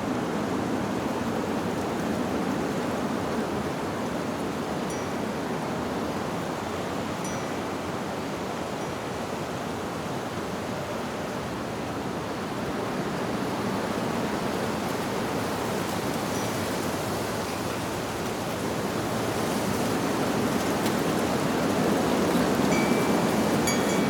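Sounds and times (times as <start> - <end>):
wind rushing through leaves: 0.0 - 24.0
faint wind chime note: 22.7 - 24.0.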